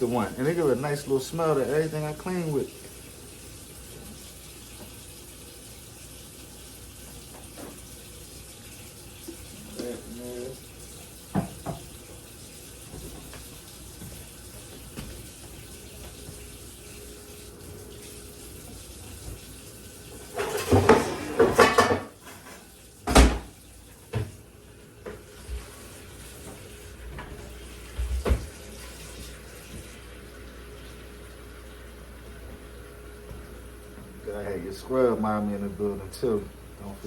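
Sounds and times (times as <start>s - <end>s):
water running into sink: 0.0s - 37.0s
dishes clattering: 20.2s - 23.5s.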